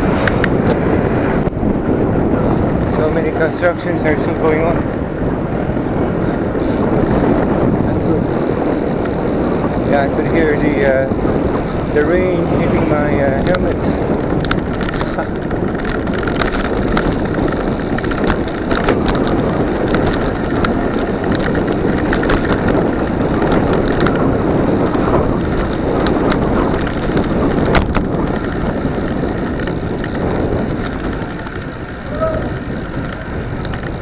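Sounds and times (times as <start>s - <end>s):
rushing bicycle riding noise: 0.0s - 34.0s
rain tapping on helmet: 13.4s - 34.0s.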